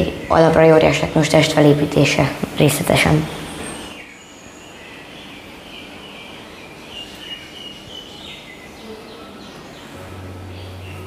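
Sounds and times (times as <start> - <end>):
background noise: 0.0 - 11.0
small birds chirping: 0.0 - 11.0
low steady hum: 8.6 - 11.0.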